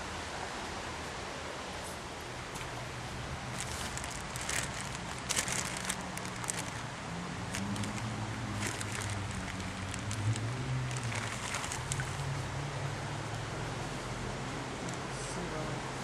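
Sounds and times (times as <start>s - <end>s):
steady outdoor noise: 0.0s - 16.0s
low engine hum: 2.1s - 16.0s
footsteps rustling in brush: 3.5s - 6.8s.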